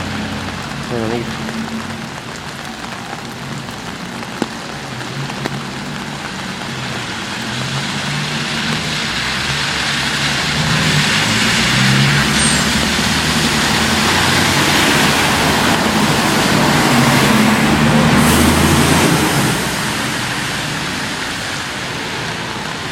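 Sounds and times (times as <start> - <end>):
tyres hissing on wet road: 0.0 - 22.9
vehicle passing close: 7.3 - 21.6.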